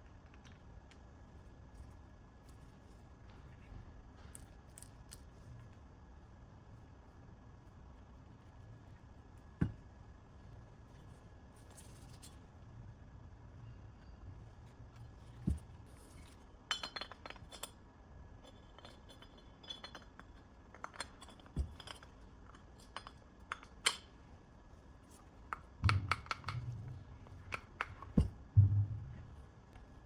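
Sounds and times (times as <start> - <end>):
dull knocks: 28.2 - 29.3.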